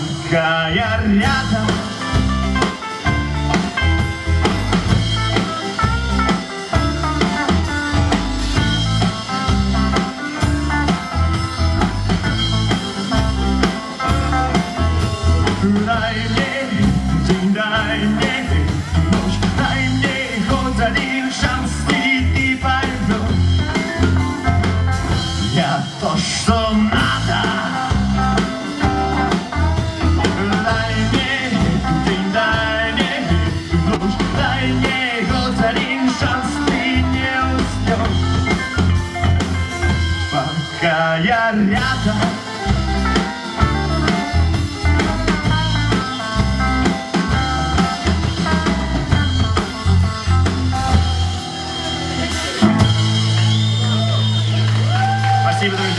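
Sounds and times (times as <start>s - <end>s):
person singing: 0.0s - 2.8s, 13.6s - 24.6s, 25.2s - 50.0s
rock band playing: 0.0s - 55.9s.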